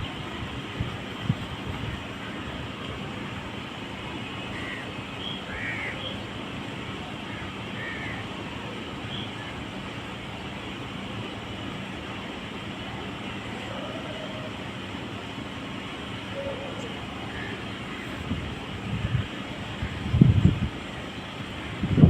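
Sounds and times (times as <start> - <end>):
steady background noise: 0.0 - 22.0
bird calls: 4.4 - 6.3, 16.3 - 18.2.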